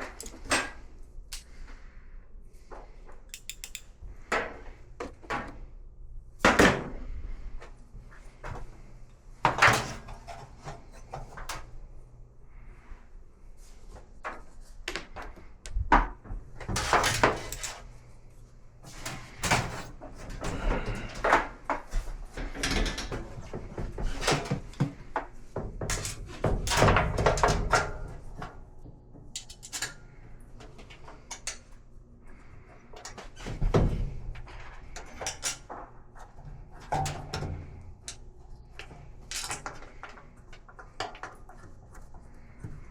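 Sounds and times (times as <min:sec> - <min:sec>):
tools clattering on washer cabinet: 0:00.0 - 0:00.8, 0:03.3 - 0:05.6, 0:16.7 - 0:17.8, 0:18.9 - 0:28.1.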